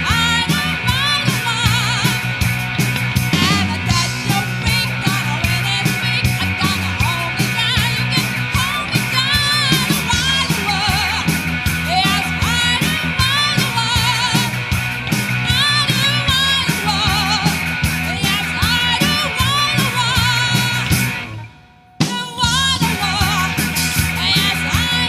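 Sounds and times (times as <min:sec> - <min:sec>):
bass: 0:00.0 - 0:25.0
rock and roll band playing: 0:00.0 - 0:25.0
steady drum beat: 0:00.0 - 0:25.0
person singing with vibrato: 0:03.3 - 0:14.5, 0:15.4 - 0:21.0, 0:22.0 - 0:25.0.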